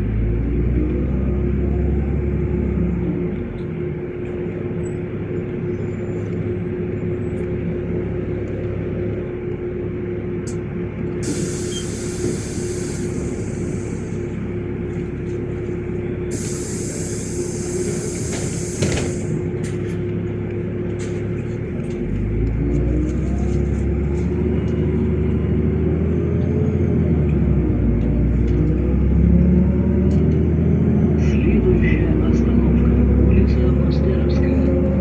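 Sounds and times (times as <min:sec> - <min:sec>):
bus engine with rising whine: 0:00.0 - 0:35.0
compressed air hiss: 0:11.2 - 0:14.4, 0:16.3 - 0:19.4
thump: 0:18.4 - 0:19.2.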